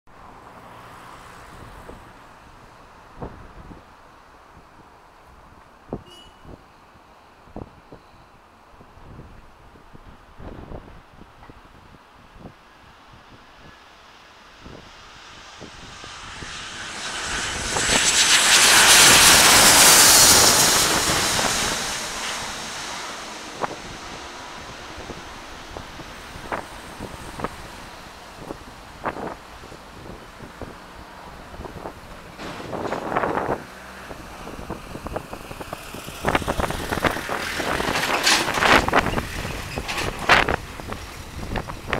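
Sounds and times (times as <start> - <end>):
wind buffeting microphone: 3.1 - 4.0, 8.8 - 13.8, 14.6 - 41.9
jet engines of passing airliner: 13.0 - 41.9.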